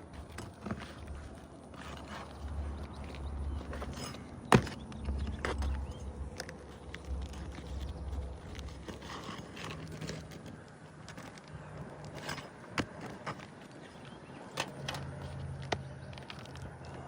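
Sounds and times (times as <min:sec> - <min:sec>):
tools scraping on roof shingles: 0:00.0 - 0:17.0.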